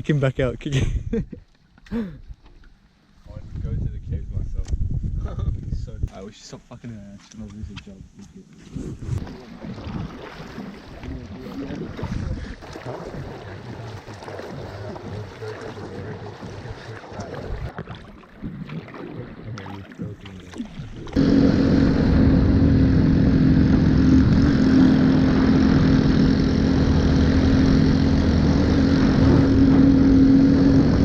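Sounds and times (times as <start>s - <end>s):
splashing: 9.2s - 31.0s
loud engine drone: 21.2s - 31.0s.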